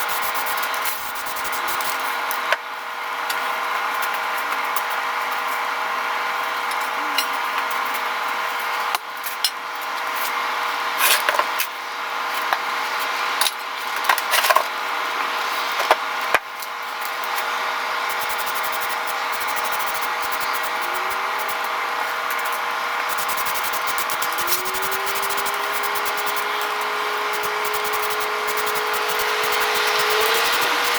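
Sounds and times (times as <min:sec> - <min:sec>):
motor spinning up: 0:18.1 - 0:30.9
power tool motor running: 0:18.1 - 0:30.9.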